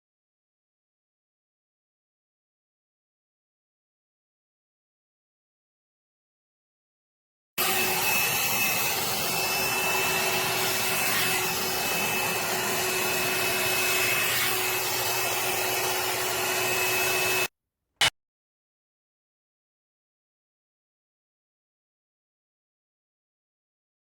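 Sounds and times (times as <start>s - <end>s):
hot air brush fan whirring: 7.6s - 17.5s.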